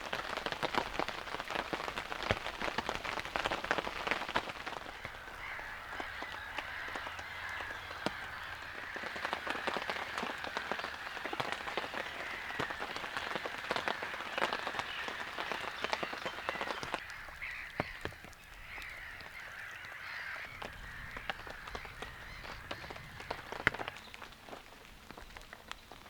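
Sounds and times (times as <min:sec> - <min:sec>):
rain dripping: 0:00.0 - 0:26.0.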